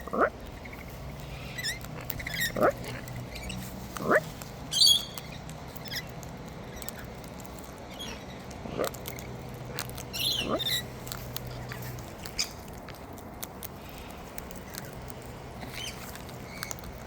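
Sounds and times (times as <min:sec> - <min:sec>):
beak and claw clicks and scratches: 0:00.0 - 0:17.0
parrot squawk: 0:01.4 - 0:06.1, 0:10.2 - 0:10.8.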